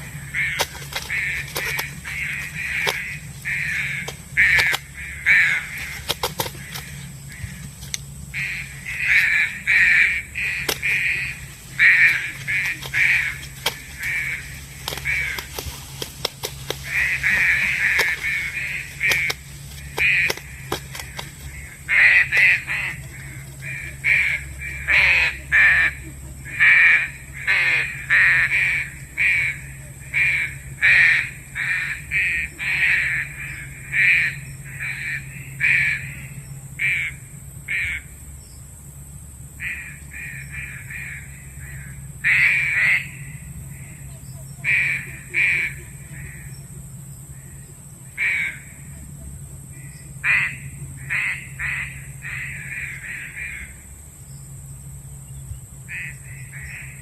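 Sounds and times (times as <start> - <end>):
pigeon calling harsh notes: 0.0 - 38.0
low hum: 0.0 - 57.0.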